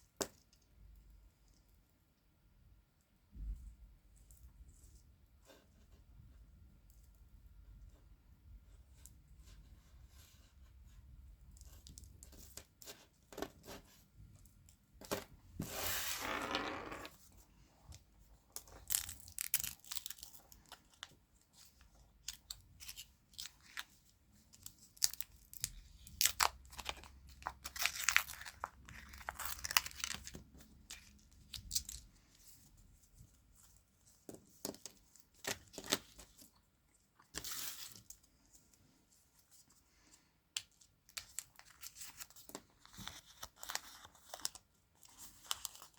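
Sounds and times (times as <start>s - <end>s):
candy wrappers tearing: 18.6s - 20.8s, 24.8s - 32.1s.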